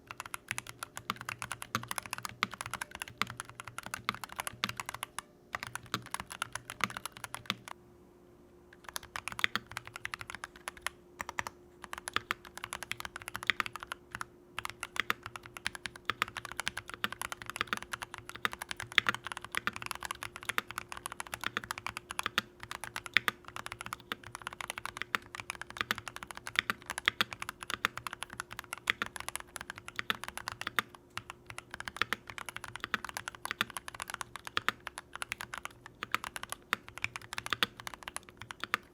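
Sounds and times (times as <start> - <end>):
mechanical keyboard typing: 0.0 - 7.8, 8.8 - 38.9
faint steady hum: 0.0 - 38.9.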